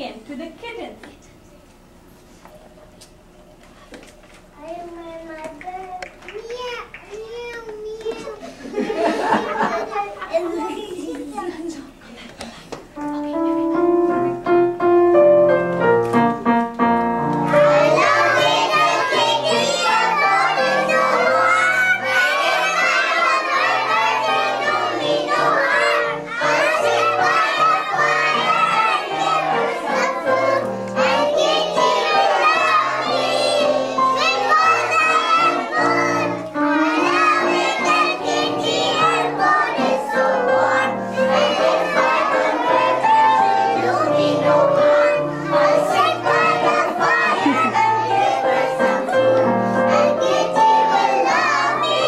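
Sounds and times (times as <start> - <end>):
instrumental music: 13.0 - 52.0
piano melody: 13.0 - 52.0
children singing: 17.5 - 52.0.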